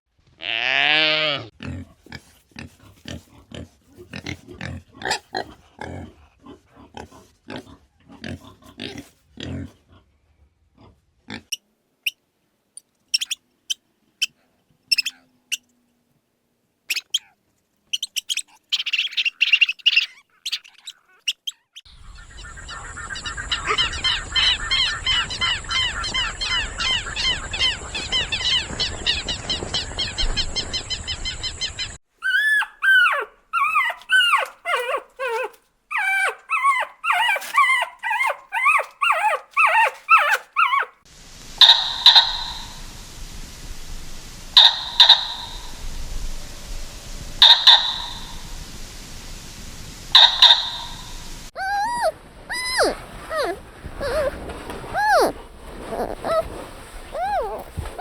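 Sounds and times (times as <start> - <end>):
rapid low animal grunts: 1.6 - 11.5
short chirps and clicks: 12.8 - 13.4, 41.6 - 42.8, 44.6 - 45.8, 47.4 - 48.4, 50.2 - 51.0
chorus of chirping calls: 13.2 - 14.3, 14.9 - 15.6, 16.9 - 17.3, 17.9 - 40.9, 41.6 - 42.9, 44.6 - 45.9, 47.4 - 48.6, 50.1 - 58.0.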